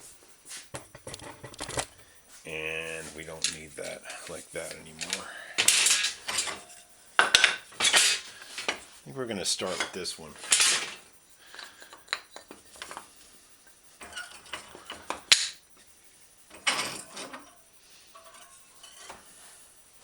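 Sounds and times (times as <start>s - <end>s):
metal clinks and knocks: 0.8s - 2.0s, 3.4s - 9.0s, 9.7s - 19.8s
scraping rattle: 3.2s - 8.9s, 9.6s - 15.8s, 16.4s - 19.8s.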